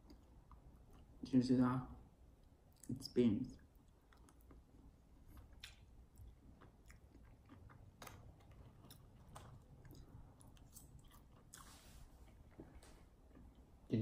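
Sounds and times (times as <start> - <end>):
close chewing: 3.6 - 13.7.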